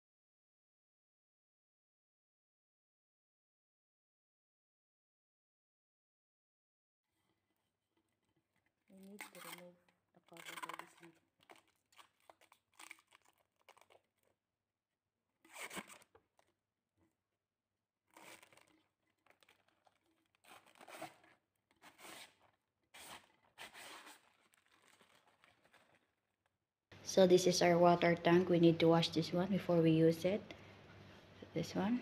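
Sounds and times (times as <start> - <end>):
plastic wrapping crinkling and tearing: 8.6 - 14.3, 15.5 - 16.5, 18.1 - 26.4.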